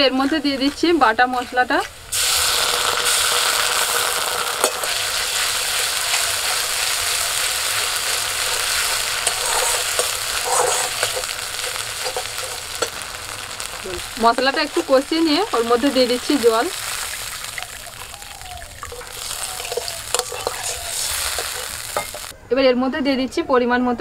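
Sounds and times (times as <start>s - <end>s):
spice paste sizzling in oil: 0.0s - 22.4s
metal spatula scraping pan: 8.0s - 13.1s.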